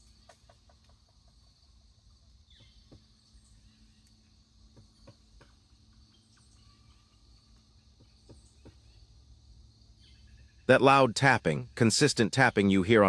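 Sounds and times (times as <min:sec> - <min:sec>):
woodpecker pecking on tree: 0:00.0 - 0:09.0.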